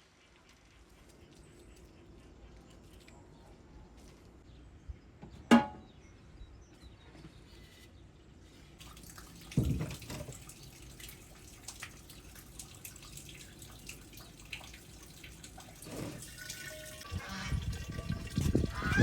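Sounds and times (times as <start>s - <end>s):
water running and splashing: 8.8s - 19.0s.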